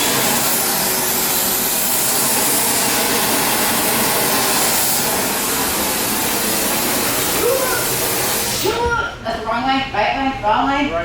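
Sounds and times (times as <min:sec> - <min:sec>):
forge rushing hiss: 0:00.0 - 0:08.8.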